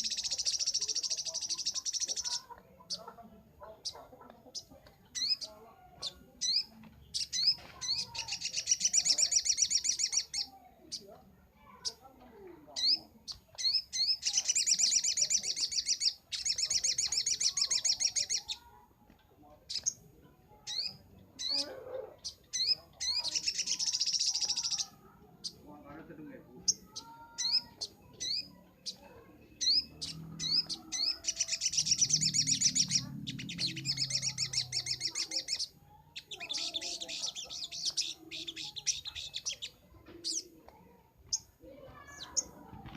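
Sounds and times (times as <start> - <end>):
bird singing chirps and trills: 0.0 - 18.8, 19.6 - 42.9
bird rising chirps: 26.6 - 40.4.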